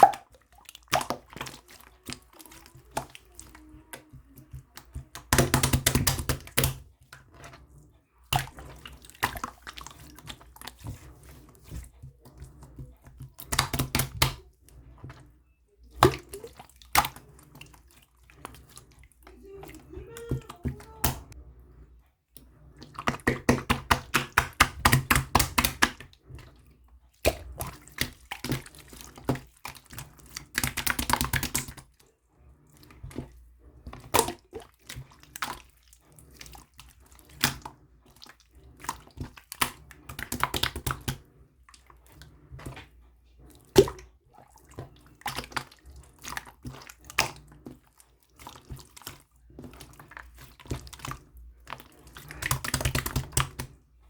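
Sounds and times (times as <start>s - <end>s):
slime squished by hand: 0.0s - 7.6s
wet clicking and popping: 0.0s - 7.6s, 8.2s - 15.2s, 15.8s - 21.4s, 22.4s - 32.0s, 32.8s - 53.8s.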